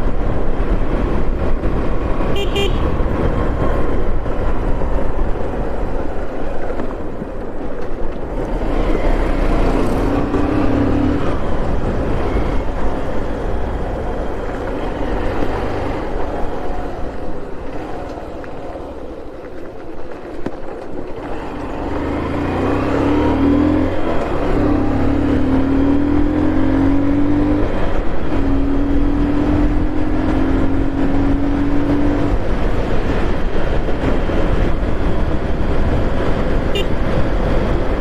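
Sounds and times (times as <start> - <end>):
wind and road noise: 0.0 - 38.0
vehicle engine accelerating: 8.1 - 19.9, 20.7 - 38.0.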